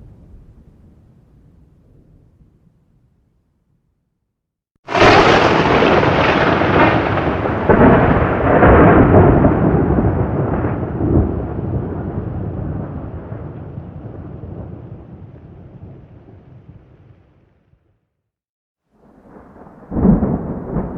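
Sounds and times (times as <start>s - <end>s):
thunder rumbling: 4.9s - 17.7s, 19.0s - 20.9s.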